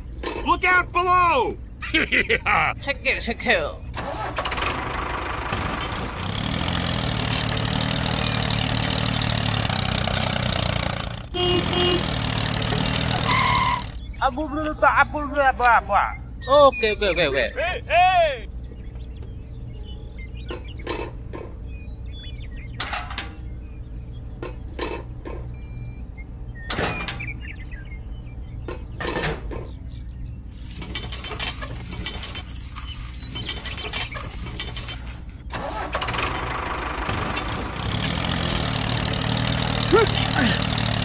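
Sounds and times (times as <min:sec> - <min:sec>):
knocks and clatters: 0:04.4 - 0:14.0, 0:28.6 - 0:29.8, 0:30.5 - 0:41.0
dense buzzing: 0:05.5 - 0:16.4
small motor running: 0:11.6 - 0:16.4.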